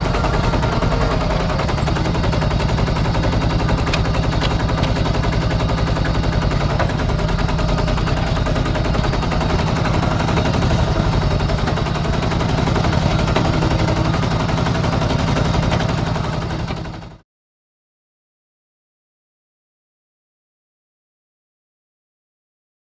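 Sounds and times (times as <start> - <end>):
small diesel engine knocking: 0.0 - 17.2.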